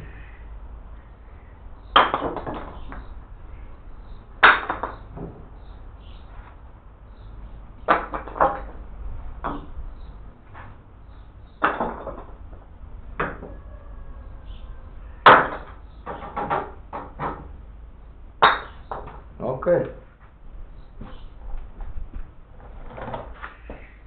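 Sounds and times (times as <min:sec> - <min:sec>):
knocks and clunks of building work: 0:01.9 - 0:03.2, 0:04.4 - 0:05.8, 0:07.8 - 0:13.7, 0:15.2 - 0:17.7, 0:18.4 - 0:19.3, 0:20.1 - 0:24.0.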